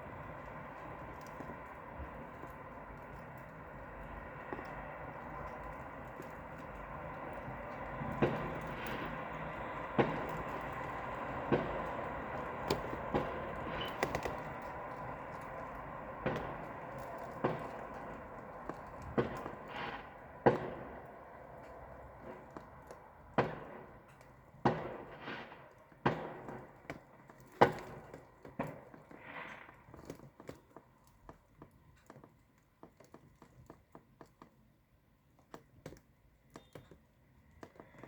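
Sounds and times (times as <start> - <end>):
fireworks bangs and cracks: 4.5 - 21.4, 23.3 - 26.9.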